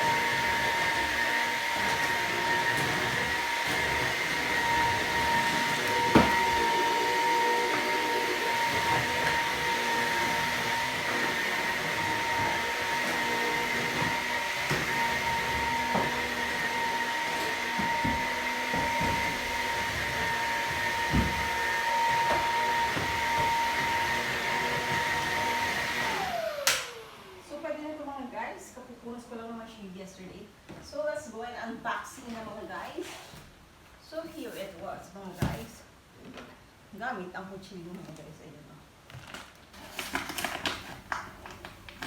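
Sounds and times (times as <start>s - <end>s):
vacuum cleaner motor whine: 0.0s - 27.7s.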